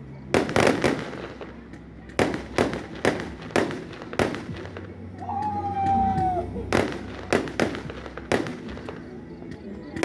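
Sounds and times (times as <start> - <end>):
fireworks bangs: 0.3 - 5.0, 6.0 - 9.1.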